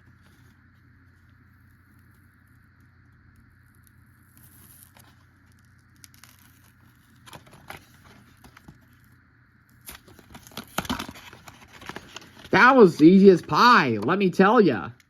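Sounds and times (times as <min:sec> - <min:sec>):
plastic and cardboard rustling: 0:06.2 - 0:09.0, 0:09.9 - 0:13.6.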